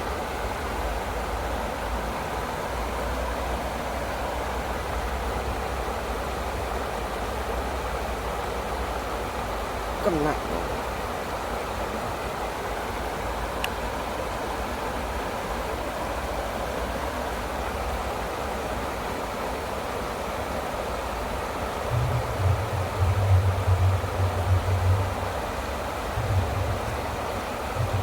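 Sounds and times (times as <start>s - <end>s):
water rushing: 0.0s - 28.0s
low rumbles on the microphone: 21.9s - 28.0s.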